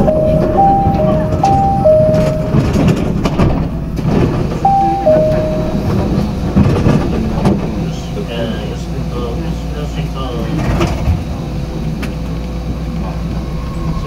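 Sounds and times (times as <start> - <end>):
two-note electronic chime: 0.0 - 3.0, 4.6 - 6.3
train rumbling: 0.0 - 14.0.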